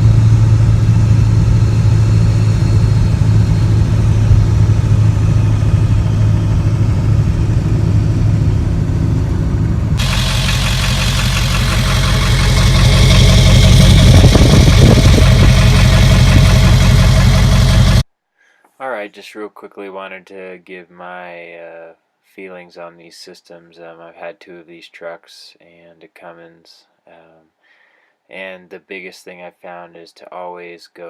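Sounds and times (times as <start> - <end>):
diesel engine drone from cab: 0.0 - 18.0.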